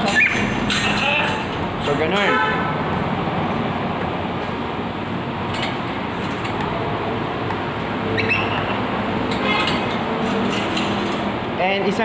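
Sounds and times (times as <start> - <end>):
parrot calling: 0.0 - 0.5, 8.2 - 8.8
traffic noise: 0.0 - 12.0.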